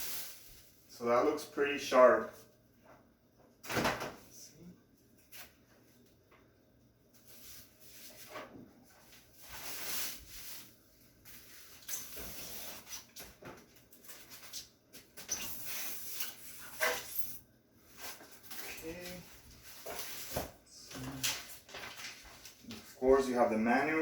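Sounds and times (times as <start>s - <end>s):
plastic and paper crinkling: 17.9s - 23.0s.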